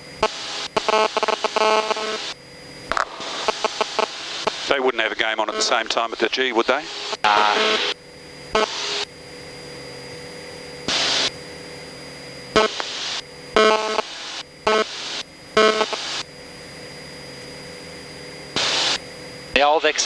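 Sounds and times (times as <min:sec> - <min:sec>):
airplane engine drone: 0:00.0 - 0:20.0
short buzzy bursts: 0:03.0 - 0:04.7, 0:06.8 - 0:09.1, 0:10.9 - 0:11.4, 0:12.5 - 0:16.2, 0:18.5 - 0:19.0.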